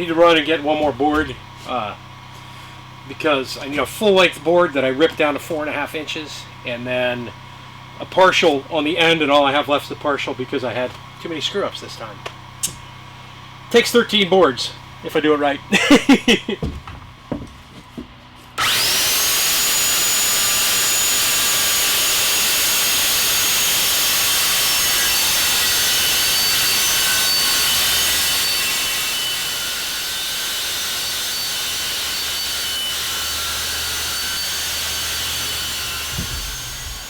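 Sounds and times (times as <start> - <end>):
power saw ripping wood: 15.8 - 37.0.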